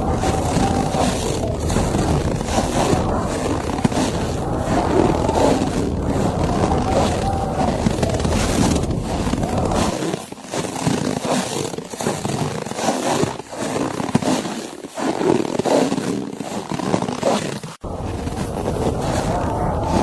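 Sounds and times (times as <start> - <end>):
blizzard wind: 0.0 - 10.0, 17.8 - 20.0.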